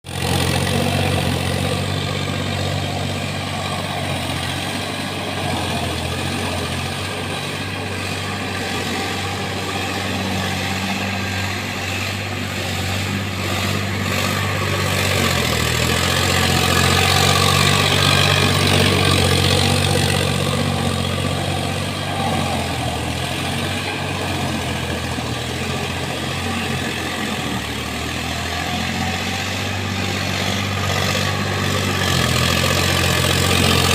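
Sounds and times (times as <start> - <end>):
tractor diesel engine running: 0.0 - 33.9.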